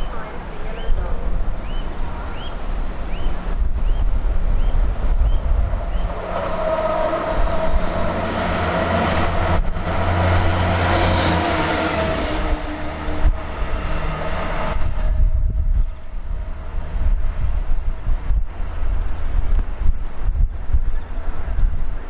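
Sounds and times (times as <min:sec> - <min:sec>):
train passing at speed: 0:00.0 - 0:22.0
wind buffeting microphone: 0:00.0 - 0:22.0.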